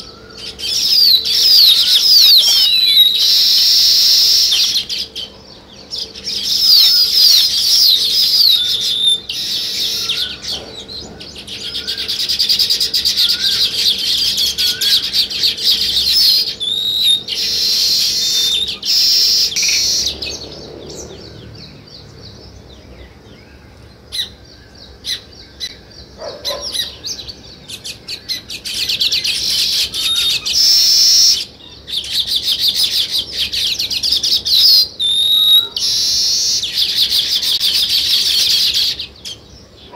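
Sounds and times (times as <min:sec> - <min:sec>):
songbirds chattering and chirping: 0:00.0 - 0:39.9
short rising bird call: 0:00.1 - 0:04.8.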